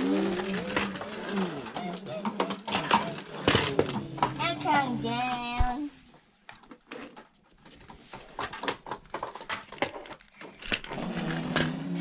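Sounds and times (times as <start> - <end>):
plastic toy trucks clicking and tapping: 0.0 - 4.6, 6.5 - 12.0.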